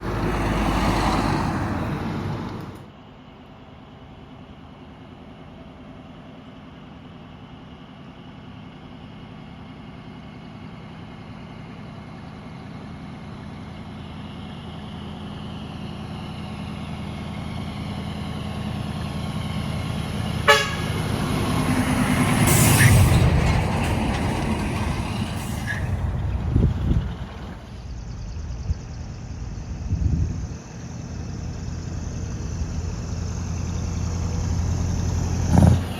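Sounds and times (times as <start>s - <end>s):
diesel truck driving past: 0.0s - 35.9s
truck horn toot: 20.4s - 21.2s.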